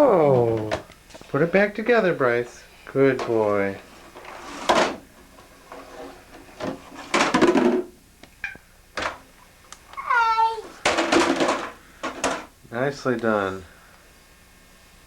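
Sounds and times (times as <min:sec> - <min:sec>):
toddler high call: 0:10.0 - 0:10.8.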